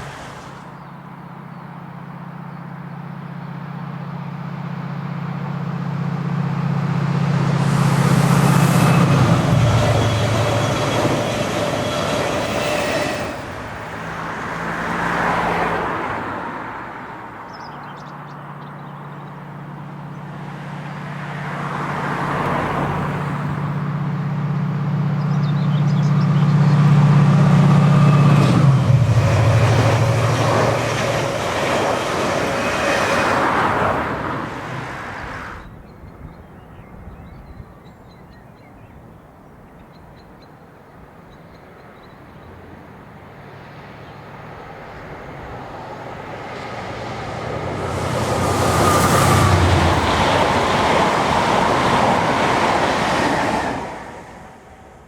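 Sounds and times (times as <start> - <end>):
diesel locomotive engine: 0.0 - 36.2, 40.6 - 55.0
train wheels rolling on rails: 6.2 - 14.8, 25.9 - 35.5, 44.7 - 54.6.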